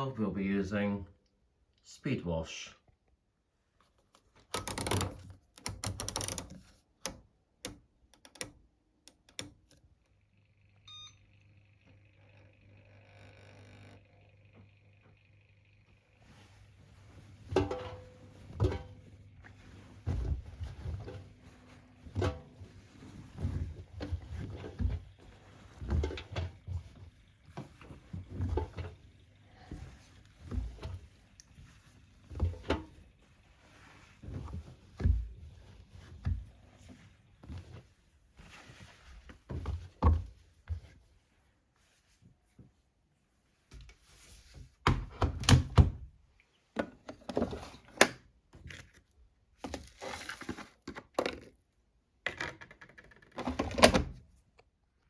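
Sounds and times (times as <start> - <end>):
washing machine knocks and thuds: 22.0 - 31.1, 44.9 - 46.1.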